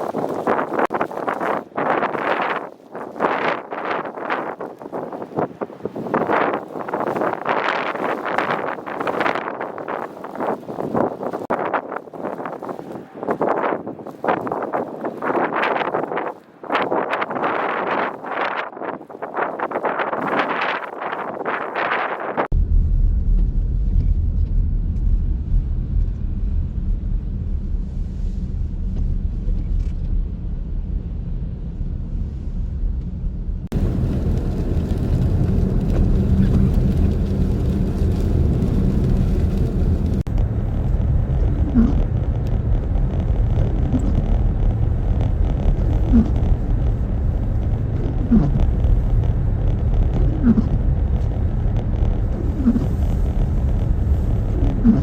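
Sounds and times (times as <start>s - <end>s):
low rumbling wind noise: 0.0s - 55.0s
vehicle noise: 22.6s - 55.0s.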